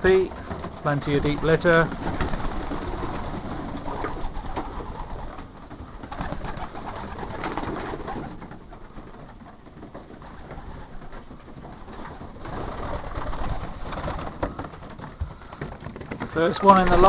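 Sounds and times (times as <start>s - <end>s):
pigeons cooing: 1.3s - 16.1s.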